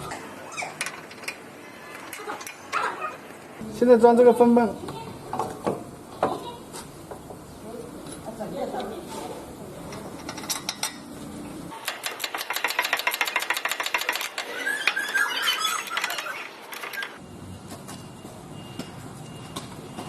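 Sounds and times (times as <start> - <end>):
short high squeaks: 14.4 - 17.2.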